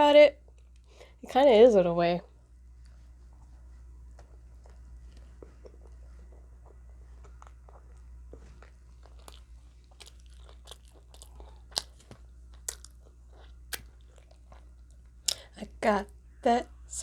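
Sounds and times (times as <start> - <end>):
low steady hum: 0.0 - 17.0
person chewing crunchy food: 2.8 - 15.6.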